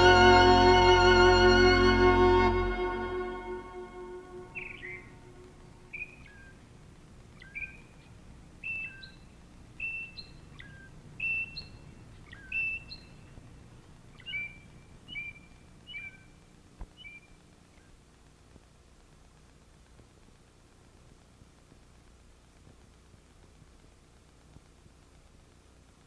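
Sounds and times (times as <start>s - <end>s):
bird chirping: 0.0s - 18.0s.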